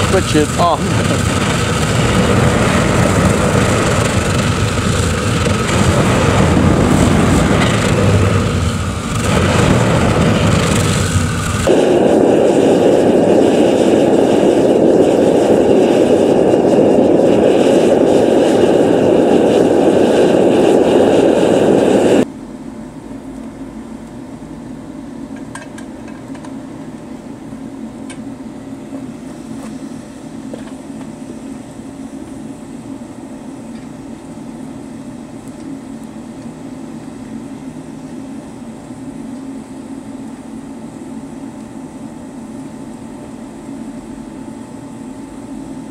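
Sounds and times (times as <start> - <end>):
furnace burner roaring: 0.0 - 45.9.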